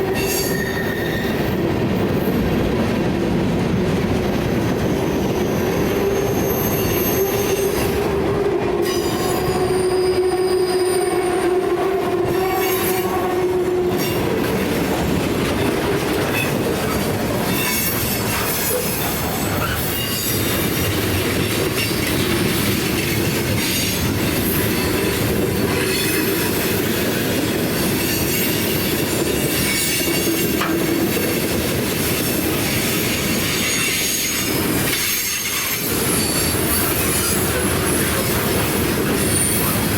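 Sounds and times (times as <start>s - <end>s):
train wheels squealing on rails: 0.0s - 2.8s, 4.4s - 14.6s, 15.6s - 39.9s
train rolling noise: 0.0s - 39.9s.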